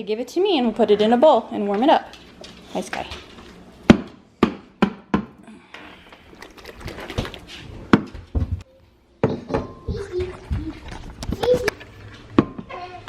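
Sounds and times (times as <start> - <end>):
kitchen items knocking and clinking: 6.4 - 8.6, 9.2 - 13.0.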